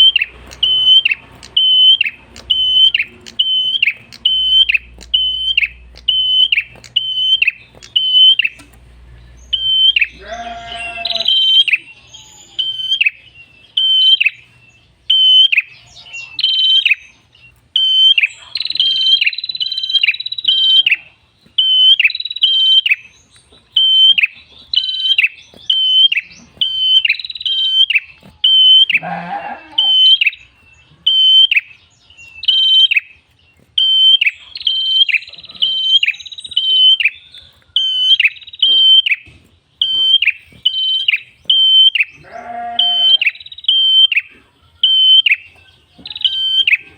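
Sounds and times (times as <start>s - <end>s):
bird singing high sharp chirps: 0.0s - 46.9s
lower rough bird call: 41.5s - 45.0s.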